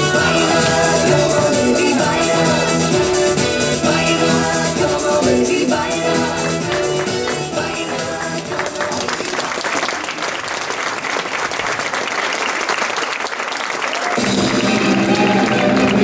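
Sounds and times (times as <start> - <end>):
music: 0.0 - 9.6, 14.2 - 16.0
audience applauding: 8.4 - 16.0.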